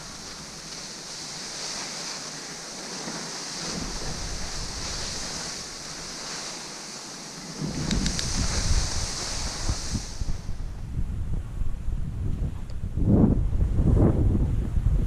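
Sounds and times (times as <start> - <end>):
wind buffeting microphone: 0.0 - 6.6, 7.4 - 15.0
skis sliding over snow: 0.0 - 10.7.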